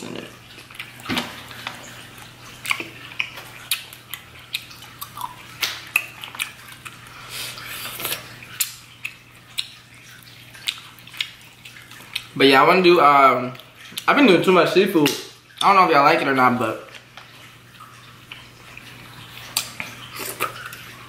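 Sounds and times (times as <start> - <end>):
wet chewing and lip-smacking: 2.0 - 12.4, 13.5 - 14.1, 17.3 - 21.0.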